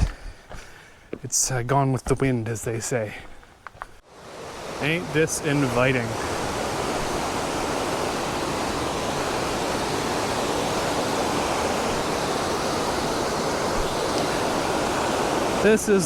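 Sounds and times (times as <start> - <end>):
river water rushing: 4.0 - 16.0.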